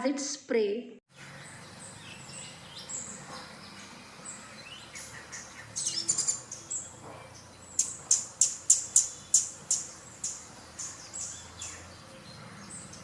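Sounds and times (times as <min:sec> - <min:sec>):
small birds chirping: 0:01.1 - 0:13.0.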